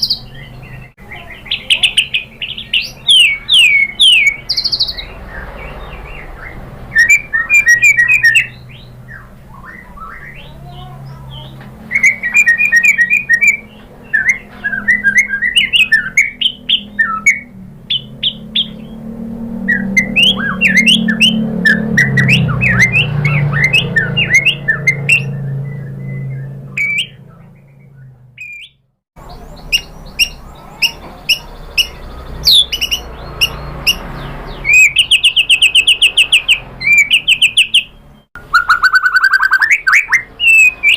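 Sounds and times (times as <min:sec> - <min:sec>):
songbird whistles and trills: 0:00.0 - 0:40.9
low hum: 0:13.0 - 0:28.6.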